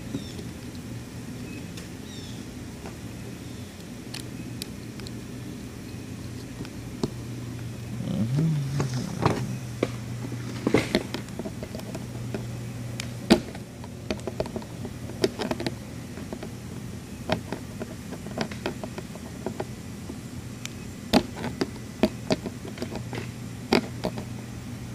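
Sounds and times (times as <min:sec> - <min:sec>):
electric blower humming: 0:06.4 - 0:17.0.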